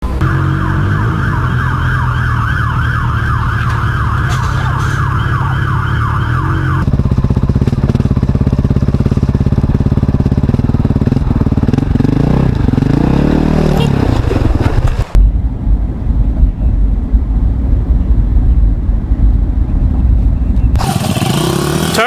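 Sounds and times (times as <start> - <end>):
motorcycle engine pulsing: 0.0 - 13.2
vehicle engine running: 0.0 - 13.2
emergency siren yelping: 0.2 - 6.9.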